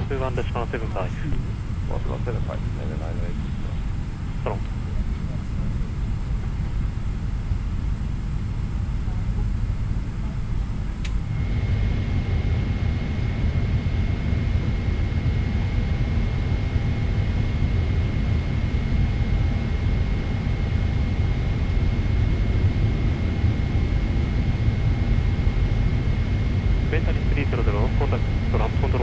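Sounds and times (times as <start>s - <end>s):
airliner cabin engine rumble: 0.0s - 29.0s
click: 11.0s - 11.2s.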